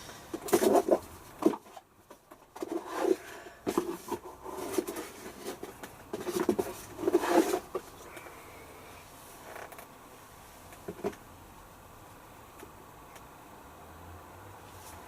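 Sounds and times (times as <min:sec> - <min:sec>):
detergent powder rustling and scraping: 0:02.6 - 0:08.0.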